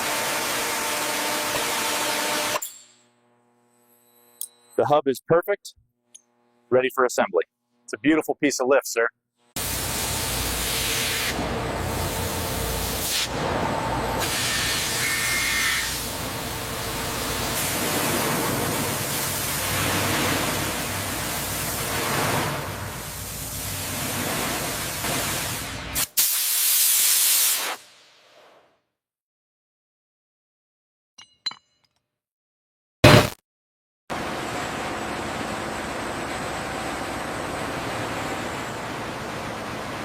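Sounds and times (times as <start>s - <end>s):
hissing spray-like industrial noise: 9.6s - 27.9s.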